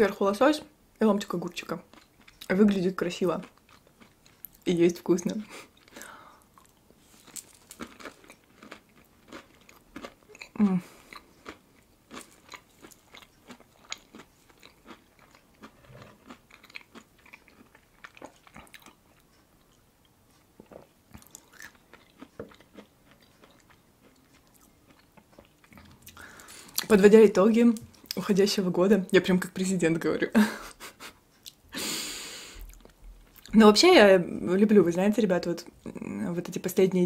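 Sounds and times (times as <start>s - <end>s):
soft chewing and mouth clicks: 1.6s - 2.8s, 3.4s - 4.7s, 5.4s - 27.0s, 31.2s - 31.7s, 32.6s - 33.6s.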